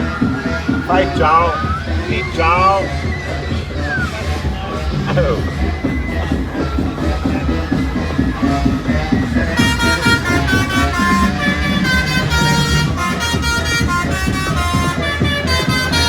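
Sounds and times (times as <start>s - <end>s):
truck engine idling: 0.0s - 16.0s
musical truck air horns: 8.0s - 16.0s.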